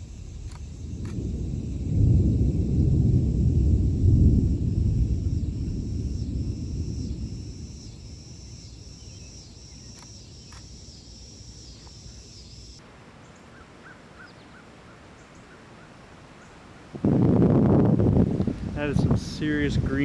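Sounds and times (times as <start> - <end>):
low rumble: 0.0 - 8.6
insects trilling: 0.0 - 14.3.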